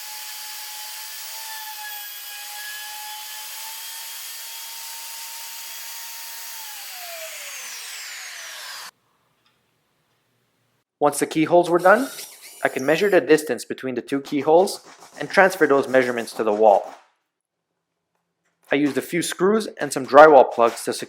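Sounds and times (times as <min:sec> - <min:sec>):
router whining: 0:00.0 - 0:08.9.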